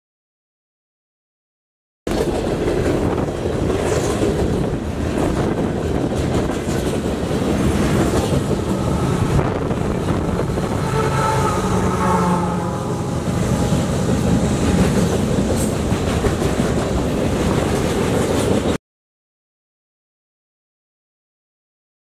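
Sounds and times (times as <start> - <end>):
diesel locomotive engine drone: 2.1 - 18.8
freight train wheels rumbling: 2.1 - 18.8.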